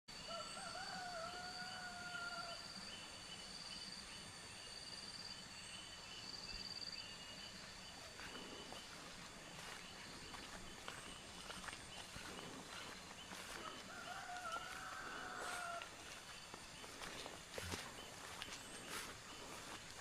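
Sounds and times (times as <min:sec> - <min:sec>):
soft footsteps: 0:08.0 - 0:20.0.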